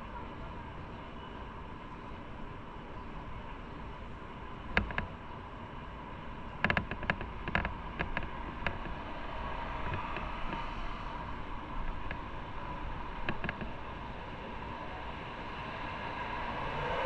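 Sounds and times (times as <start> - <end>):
wind and road noise: 0.0 - 17.0
sharp clicks and knocks: 4.7 - 5.1, 6.6 - 9.0, 9.7 - 10.9, 11.8 - 12.3, 13.2 - 13.8.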